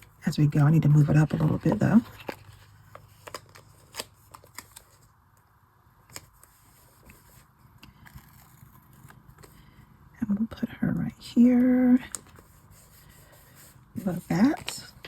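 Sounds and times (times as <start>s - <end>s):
paper rustling: 0.8s - 5.2s, 12.1s - 15.0s.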